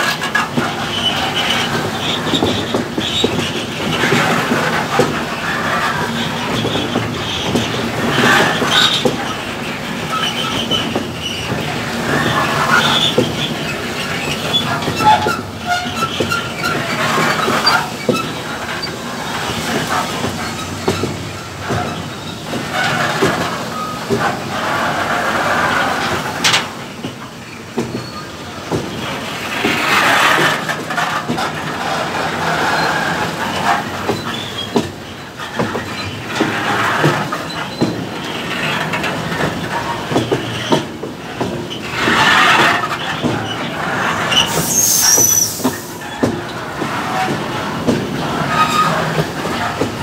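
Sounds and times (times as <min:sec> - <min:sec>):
wheels clicking and clanking on rails: 0:00.0 - 0:50.0
high wheel squeals: 0:41.8 - 0:46.3.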